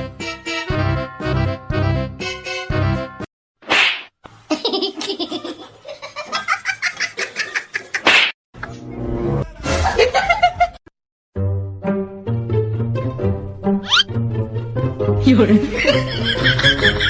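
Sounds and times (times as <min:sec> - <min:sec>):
music: 0:00.0 - 0:03.3, 0:08.6 - 0:10.8, 0:11.4 - 0:17.0.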